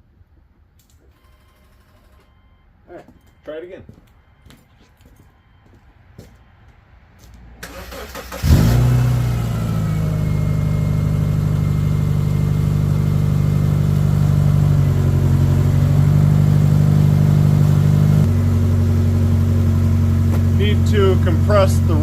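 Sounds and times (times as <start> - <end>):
car starter cranking: 7.6 - 9.4
car engine idling: 7.6 - 22.0.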